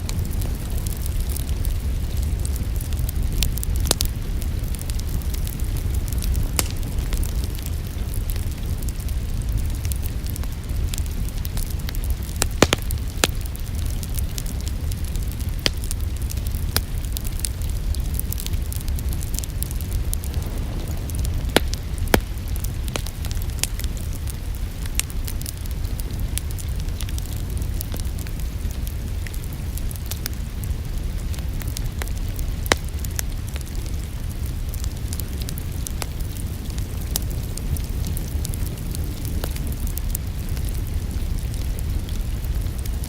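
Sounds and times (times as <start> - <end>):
wood fire crackling and popping: 0.0 - 43.0
low rumble: 18.9 - 24.9.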